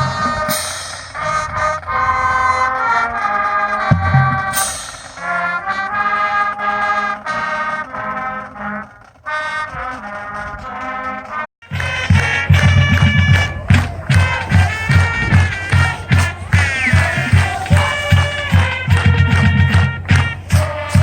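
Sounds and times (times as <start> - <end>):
marching band brass chords: 0.0 - 21.0
heavy steady drum beat: 11.6 - 21.0.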